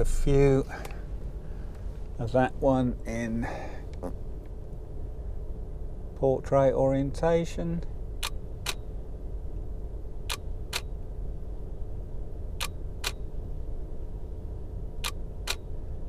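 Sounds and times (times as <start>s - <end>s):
car rumble: 0.0s - 16.0s
camera shutter clicks: 8.2s - 8.8s, 12.6s - 13.2s, 15.0s - 15.7s.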